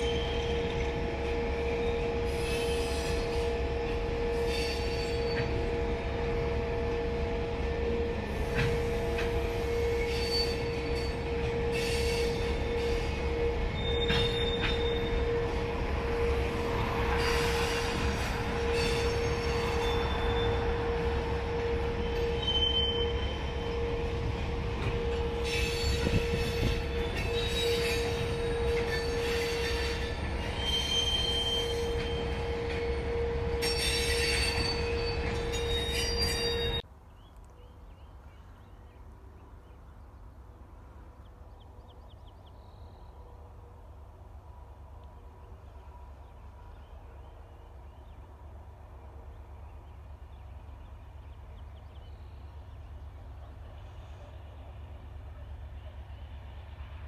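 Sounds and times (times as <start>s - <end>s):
train wheels rumbling on rail: 0.0s - 36.9s
high-pitched wheel squeals: 8.6s - 15.5s, 17.1s - 23.7s, 25.2s - 36.8s
wheel squeal: 13.8s - 15.1s.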